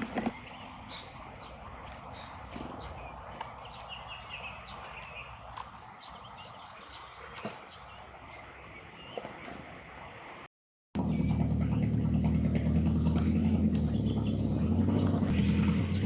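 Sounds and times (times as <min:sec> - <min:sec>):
sharp bird clicks: 0:03.3 - 0:04.0, 0:04.8 - 0:05.8.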